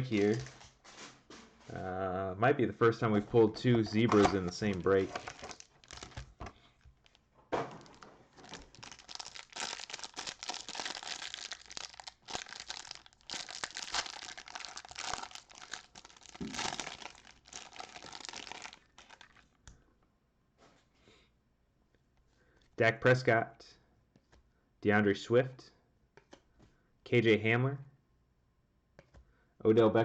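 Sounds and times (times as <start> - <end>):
packaging tearing and crinkling: 4.2 - 6.4, 7.0 - 19.5.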